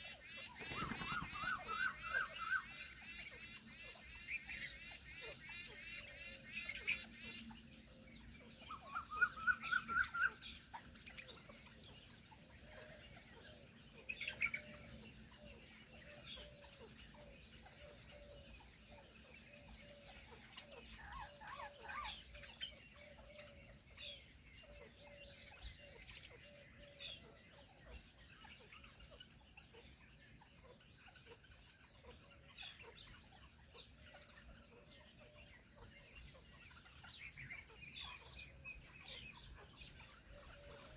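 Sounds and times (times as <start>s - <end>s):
rising bird calls: 0.0s - 7.5s, 8.4s - 23.6s
bird chirps: 0.0s - 40.9s.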